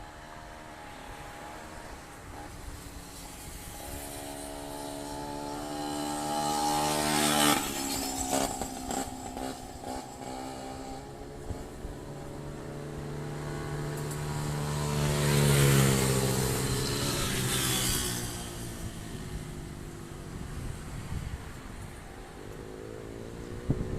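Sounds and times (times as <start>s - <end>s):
strong gusting wind on microphone: 14.3s - 23.9s.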